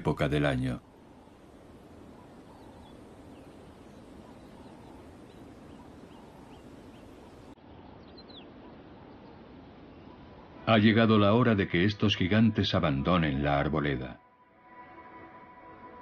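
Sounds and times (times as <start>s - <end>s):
faint bird chirps: 0.0s - 12.4s
steady low hiss: 0.0s - 14.2s.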